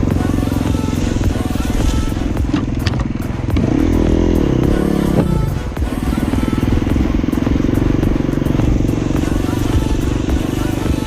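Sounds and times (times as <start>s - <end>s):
dirt bike engine revving: 0.0s - 11.0s
sharp clattering knocks: 2.4s - 3.7s.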